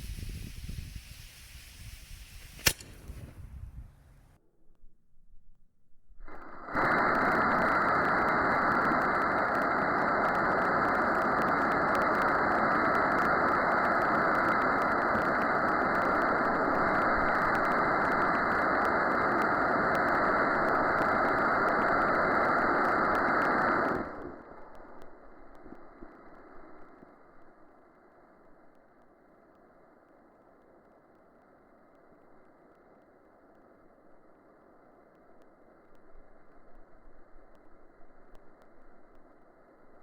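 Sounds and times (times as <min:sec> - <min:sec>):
rocket engine roaring: 0:06.3 - 0:27.8.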